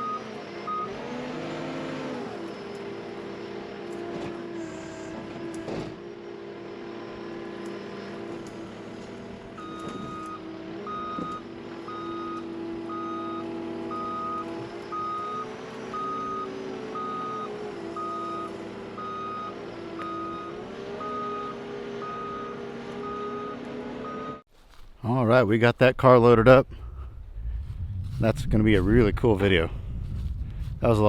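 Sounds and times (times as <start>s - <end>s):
vehicle backup alarm beeping: 0.0s - 1.0s, 9.5s - 24.4s
vehicle engine running: 0.0s - 24.4s, 26.6s - 31.0s.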